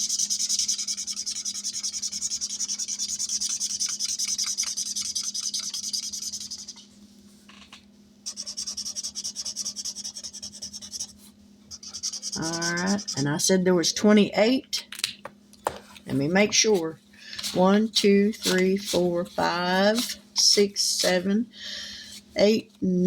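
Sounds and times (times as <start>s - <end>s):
colouring tool scratching paper: 0.0s - 6.8s, 8.3s - 13.4s, 17.4s - 21.3s
faint steady hum: 0.0s - 23.0s.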